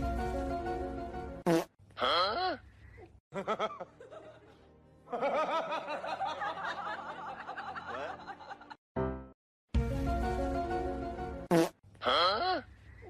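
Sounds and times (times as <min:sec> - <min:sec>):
music: 0:00.0 - 0:01.4, 0:03.8 - 0:11.5.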